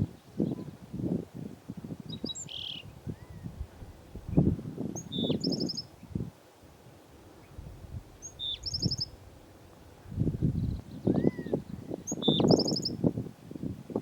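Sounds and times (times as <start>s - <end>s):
sparrow singing trill: 2.0s - 3.6s, 4.3s - 6.0s, 8.2s - 9.2s, 10.4s - 13.0s.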